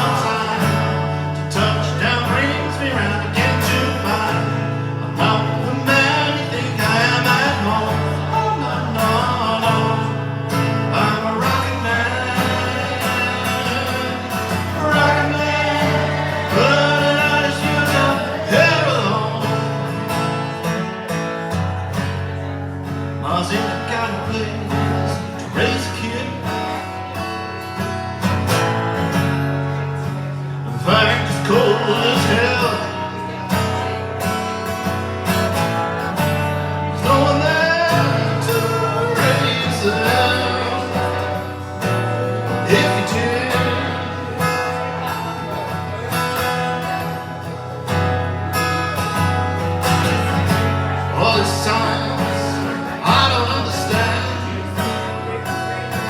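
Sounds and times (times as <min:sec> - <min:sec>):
person singing: 0:00.0 - 0:20.0, 0:30.7 - 0:34.0, 0:37.0 - 0:46.1, 0:50.9 - 0:56.0
acoustic guitar: 0:00.0 - 0:56.0.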